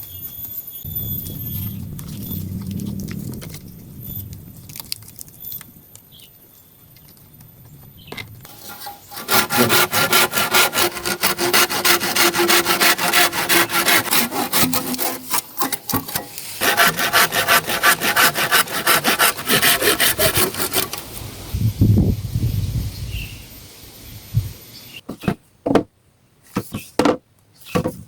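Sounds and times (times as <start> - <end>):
hand saw cutting wood: 8.5 - 21.2.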